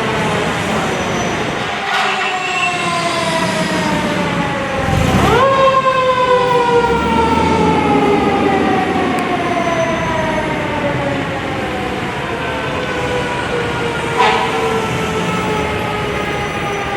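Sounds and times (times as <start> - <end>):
fire truck siren wailing: 0.0 - 16.9
truck engine rumble: 3.4 - 16.4.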